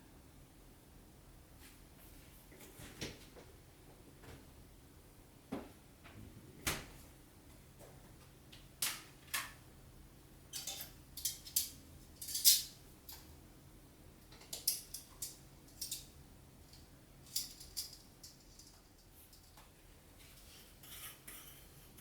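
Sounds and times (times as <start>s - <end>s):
kitchen utensils clicking and scraping: 10.5s - 13.2s, 14.4s - 16.1s, 17.2s - 19.6s, 20.3s - 22.0s.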